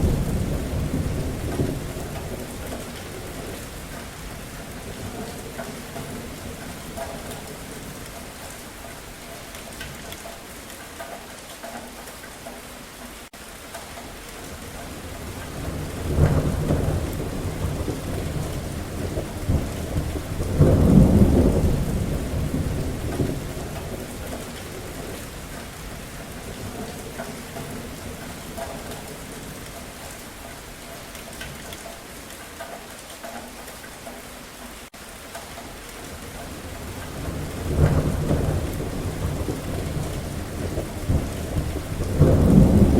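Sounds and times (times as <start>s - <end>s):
rolling thunder rumble: 0.0s - 8.5s, 14.9s - 30.2s, 36.2s - 42.9s
steady rain falling: 0.0s - 42.9s.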